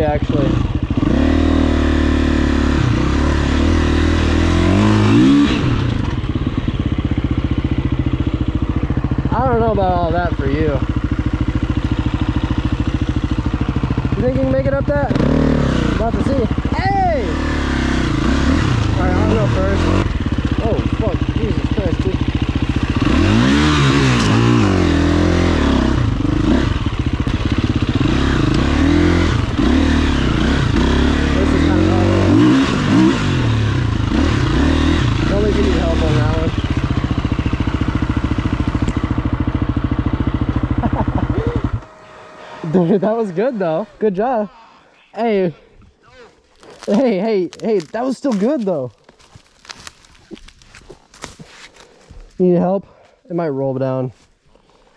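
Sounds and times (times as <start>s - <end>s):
dirtbike engine revving: 0.0s - 49.0s
clatter on rough ground: 46.4s - 53.2s.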